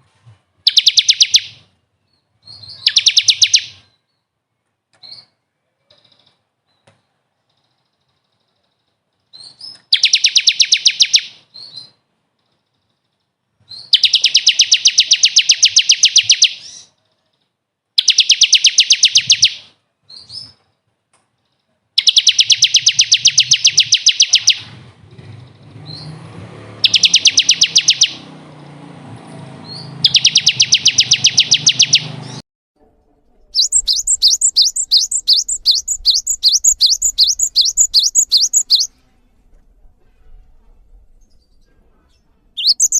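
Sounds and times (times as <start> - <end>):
rising bird chirps: 0.7 - 1.7, 2.4 - 4.0, 13.8 - 16.9, 22.0 - 24.7, 26.8 - 28.3, 29.6 - 32.4, 33.6 - 38.9, 42.6 - 42.9
songbird high trills: 26.8 - 28.2, 29.7 - 32.4, 33.6 - 38.9, 42.6 - 42.9.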